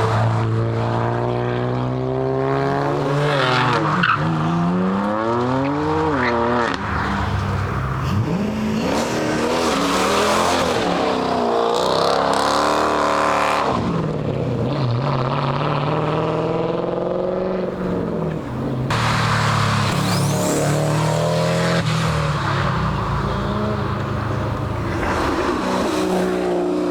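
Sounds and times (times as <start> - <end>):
car engines revving: 0.0 - 26.9.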